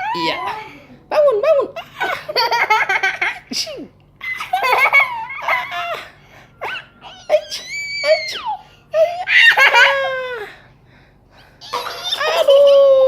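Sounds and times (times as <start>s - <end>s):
high-pitched laughter: 4.2s - 10.5s, 11.6s - 13.0s.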